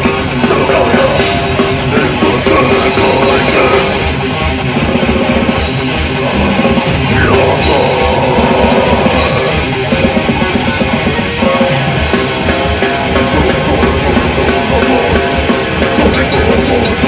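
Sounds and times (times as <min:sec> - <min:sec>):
distorted electric guitars: 0:00.0 - 0:17.0
fast dense drumming: 0:00.0 - 0:17.0.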